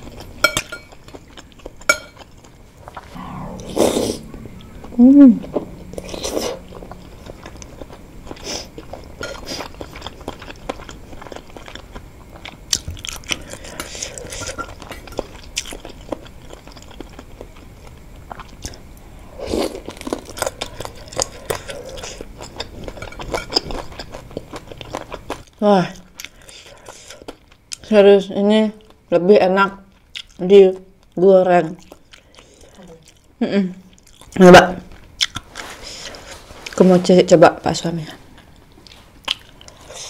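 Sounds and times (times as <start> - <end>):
chewing crunchy food: 0.0 - 3.0, 7.8 - 18.9, 19.7 - 27.9, 29.8 - 36.8, 38.3 - 40.0
person humming: 3.7 - 7.6.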